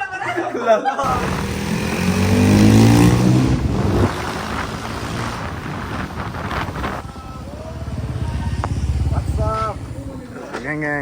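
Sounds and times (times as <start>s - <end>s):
vehicle engine rumbling: 1.0s - 10.8s
wind noise on microphone: 1.7s - 9.7s.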